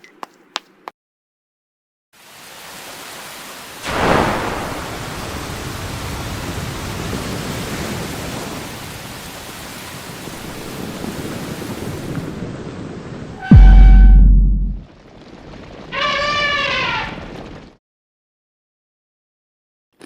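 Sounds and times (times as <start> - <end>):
heavy rain: 2.2 - 17.8
thunder crack: 3.9 - 5.6, 13.5 - 14.9
low rumble: 13.4 - 14.8.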